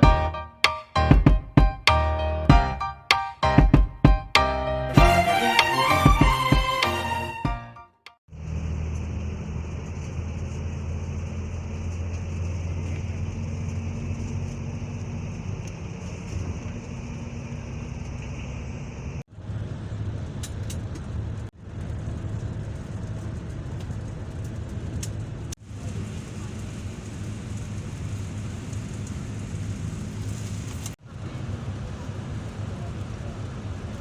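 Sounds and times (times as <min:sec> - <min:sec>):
road rumble: 0:08.3 - 0:34.0
vehicle engine hum: 0:08.3 - 0:34.0.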